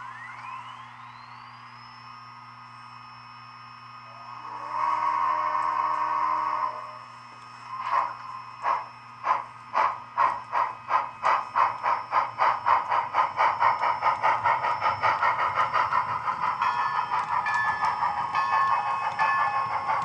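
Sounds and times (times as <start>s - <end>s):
model train steam chuffs from speaker: 4.2s - 7.0s, 7.7s - 17.2s.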